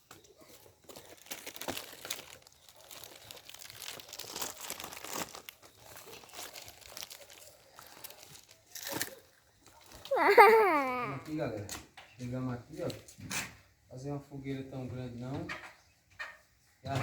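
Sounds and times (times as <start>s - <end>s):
dry leaves crunching underfoot: 0.8s - 9.1s.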